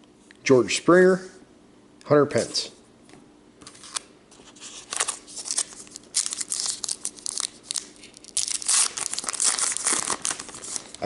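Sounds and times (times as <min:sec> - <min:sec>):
foil wrapper crinkling and tearing: 0:03.8 - 0:11.0.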